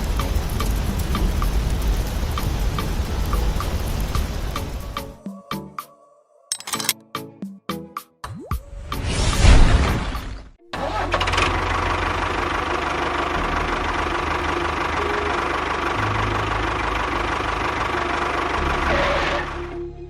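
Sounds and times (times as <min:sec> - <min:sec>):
small engine running: 0:10.8 - 0:19.8.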